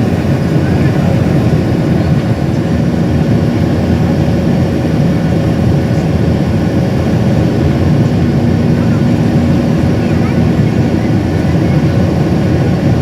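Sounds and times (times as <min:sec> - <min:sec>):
airliner engines rumbling: 0:00.0 - 0:13.0
faint hum: 0:00.0 - 0:13.0.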